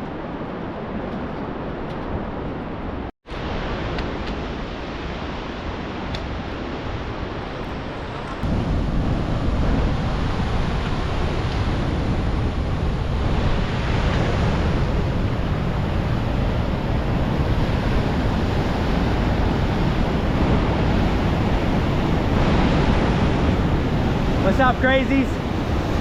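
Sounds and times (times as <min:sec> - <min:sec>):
rushing whitewater: 0:12.4 - 0:26.0.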